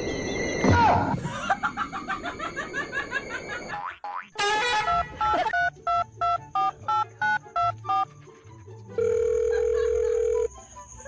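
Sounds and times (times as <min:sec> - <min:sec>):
steady phone tone: 0:09.0 - 0:10.5.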